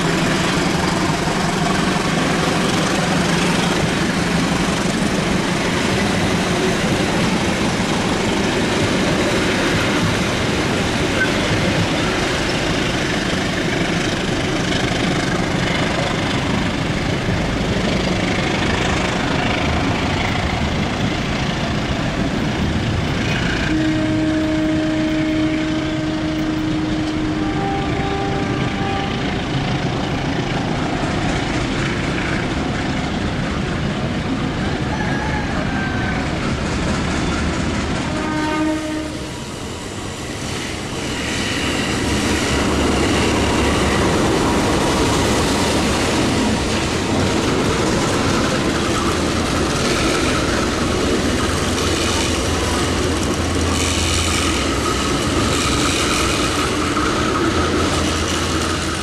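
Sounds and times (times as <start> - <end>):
passenger train noise: 0.0 - 59.0.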